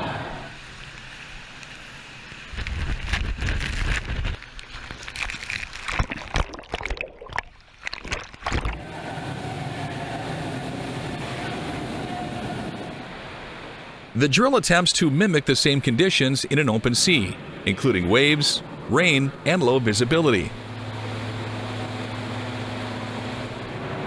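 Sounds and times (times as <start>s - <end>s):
water sloshing and splashing: 3.7s - 8.9s
faint hum: 8.5s - 24.0s.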